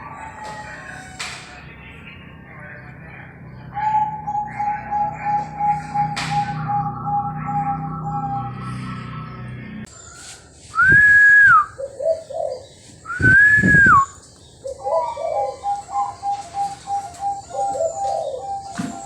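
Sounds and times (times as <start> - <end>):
dove cooing: 3.6 - 9.3, 11.7 - 19.0
loud whistled notes: 10.7 - 11.8, 13.1 - 14.2.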